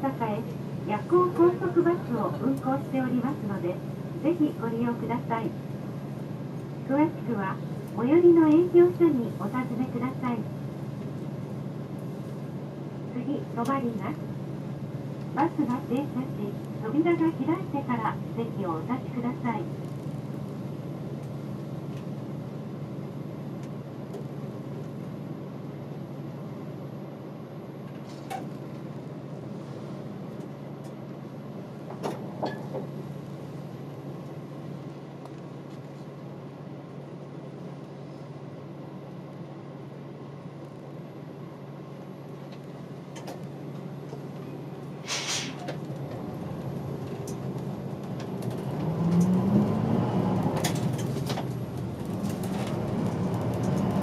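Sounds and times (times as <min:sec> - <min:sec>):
bus engine humming: 0:00.0 - 0:54.0
short hiss: 0:45.0 - 0:45.6.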